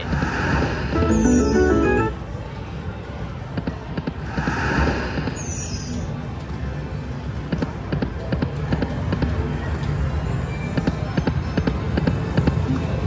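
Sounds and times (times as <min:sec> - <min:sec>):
slot machine reels spinning: 0:01.0 - 0:02.2
casino background noise: 0:01.0 - 0:02.3.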